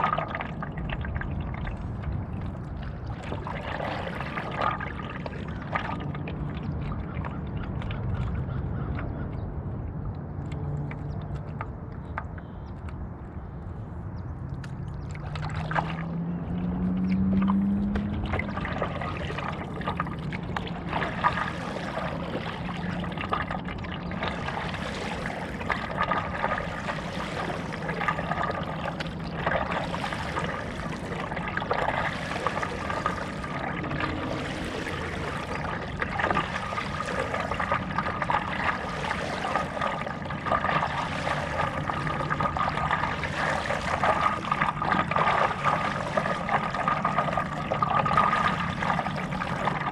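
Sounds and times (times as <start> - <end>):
paddle pulling through water: 0.0 - 49.9
water dripping off paddle: 17.0 - 49.9.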